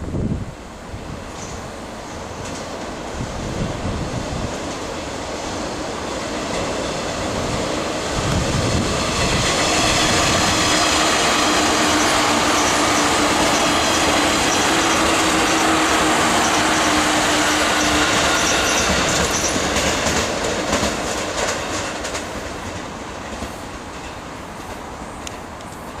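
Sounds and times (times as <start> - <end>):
train rumbling on tracks: 0.0 - 26.0
high wheel squealing: 9.6 - 20.0.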